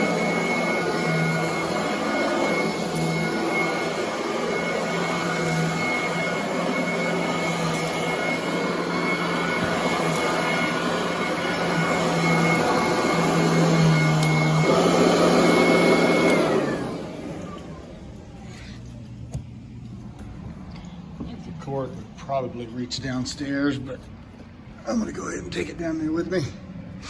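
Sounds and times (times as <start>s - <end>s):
vacuum cleaner running on carpet: 0.0s - 19.2s.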